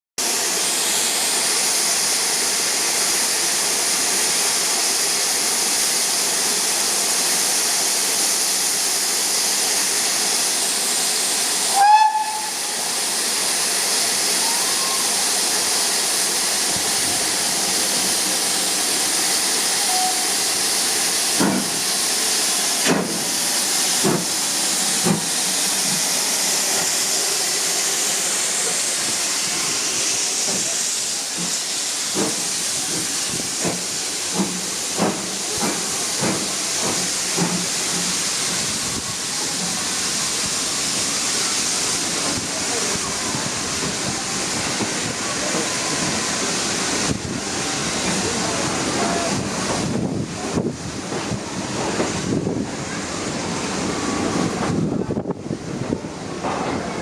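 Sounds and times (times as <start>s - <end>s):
sharp steam bursts: 0.2s - 57.0s
steam hissing: 0.2s - 57.0s
high locomotive whistle toot: 11.7s - 12.9s, 19.7s - 20.4s.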